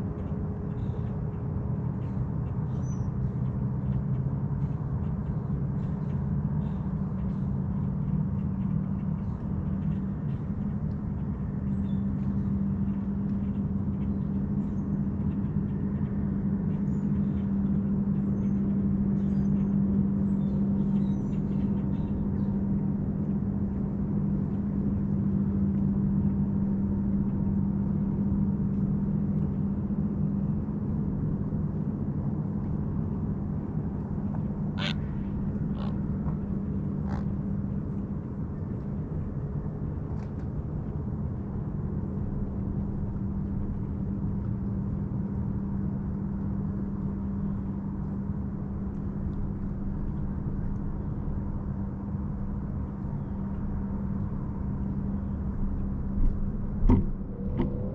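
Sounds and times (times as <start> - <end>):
motorboat engine hum: 0.0 - 57.9
short bird calls: 34.8 - 36.0.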